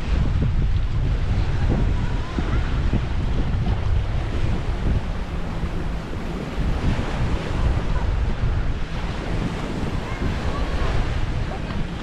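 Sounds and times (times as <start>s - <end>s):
waves washing on a beach: 0.0s - 12.0s
wind rumbling on microphone: 0.0s - 12.0s.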